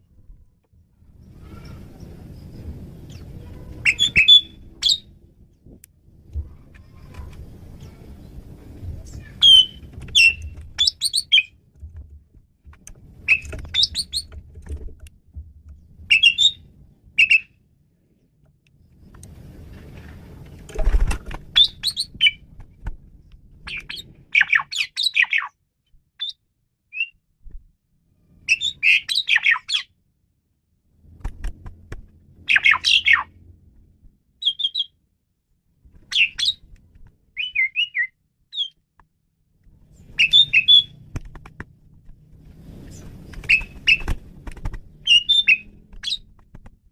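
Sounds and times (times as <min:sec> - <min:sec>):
faint low rumble: 0:00.0 - 0:24.7
bird whistling and chattering: 0:03.8 - 0:05.1, 0:09.3 - 0:11.5, 0:13.3 - 0:14.3, 0:16.1 - 0:16.6, 0:17.2 - 0:17.5, 0:21.6 - 0:22.4, 0:23.7 - 0:25.5, 0:26.2 - 0:27.2, 0:28.5 - 0:29.9, 0:32.5 - 0:33.3, 0:34.4 - 0:34.9, 0:37.4 - 0:38.8, 0:40.2 - 0:40.9, 0:45.1 - 0:46.2.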